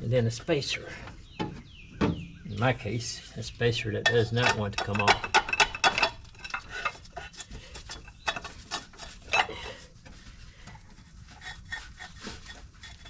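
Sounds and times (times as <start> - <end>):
metal tools scraping metal: 3.8 - 9.8
sharp metal knocks: 4.0 - 6.7.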